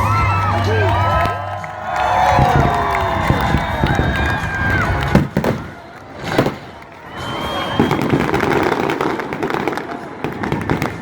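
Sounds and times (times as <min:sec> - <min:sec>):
fireworks crackling and popping: 0:00.1 - 0:11.0
firework bang: 0:02.2 - 0:11.0.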